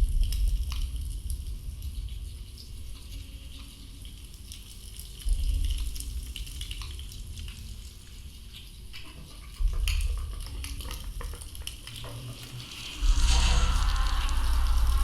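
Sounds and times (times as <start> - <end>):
deep underwater rumbling swells: 12.3 - 15.0.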